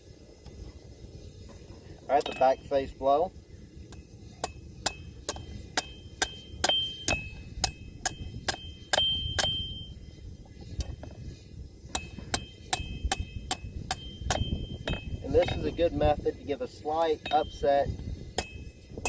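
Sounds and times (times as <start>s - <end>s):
hammer striking steel on anvil: 2.2s - 2.8s, 4.4s - 9.9s, 11.9s - 15.6s, 17.1s - 17.7s, 18.4s - 18.8s.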